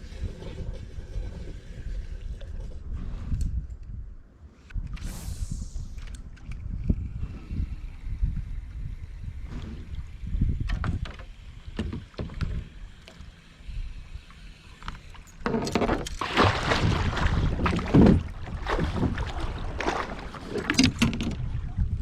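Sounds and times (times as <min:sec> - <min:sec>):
wind rumble on microphone: 0:00.0 - 0:22.0
paddle strokes swishing through water: 0:16.2 - 0:21.2.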